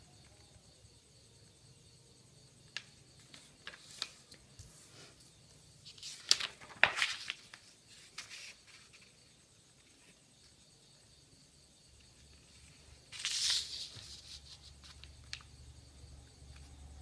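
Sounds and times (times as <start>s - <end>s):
paper crinkling and folding: 2.8s - 4.7s, 5.8s - 10.2s, 12.3s - 15.5s.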